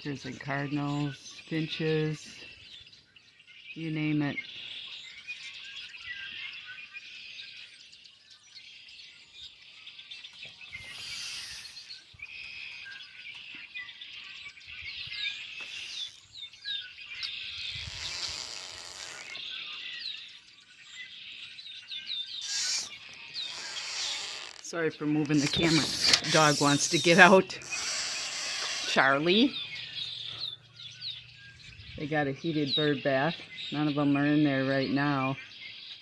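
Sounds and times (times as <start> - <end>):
birds chirping: 0.0 - 36.0
bursts of hiss: 22.4 - 24.6, 25.4 - 28.9.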